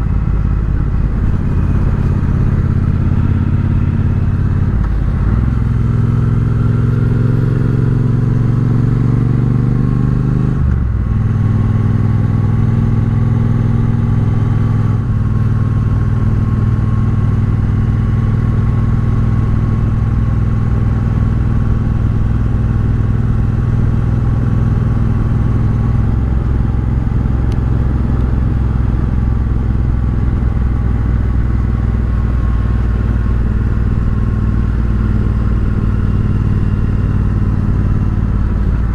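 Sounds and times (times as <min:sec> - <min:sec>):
motorcycle engine while riding: 0:00.0 - 0:38.9.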